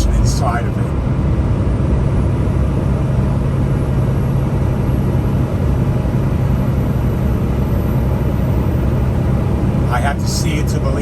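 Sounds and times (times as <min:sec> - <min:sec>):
road noise: 0:00.0 - 0:03.9, 0:08.4 - 0:11.0
truck engine drone: 0:00.0 - 0:11.0.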